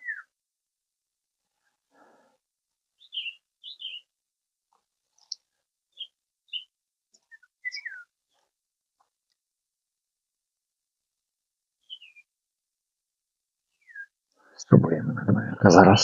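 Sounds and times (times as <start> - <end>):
songbird chirping: 0.0 - 0.4, 3.0 - 4.1, 5.1 - 8.4, 11.8 - 12.3, 13.8 - 14.8.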